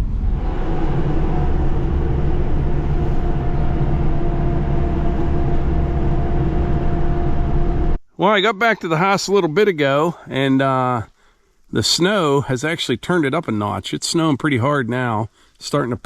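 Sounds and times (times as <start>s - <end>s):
car engine and tyre noise: 0.0s - 8.0s
faint steady hum: 0.0s - 16.0s.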